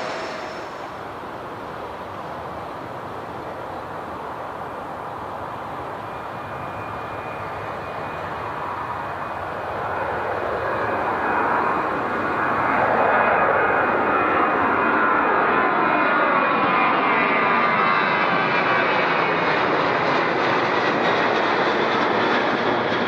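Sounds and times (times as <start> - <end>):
thin high whine: 0.0 - 1.8
jet airliner engines: 0.0 - 23.0.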